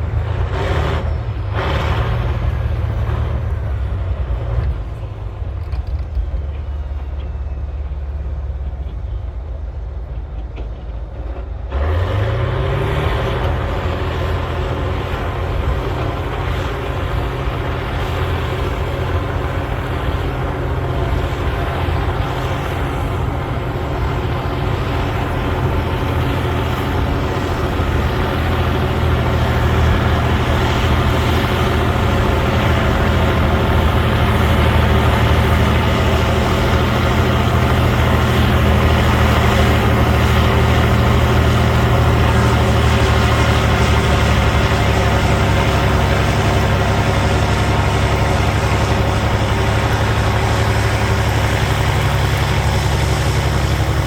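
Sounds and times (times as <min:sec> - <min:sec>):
bulldozer diesel engine revving: 0:00.0 - 0:54.0.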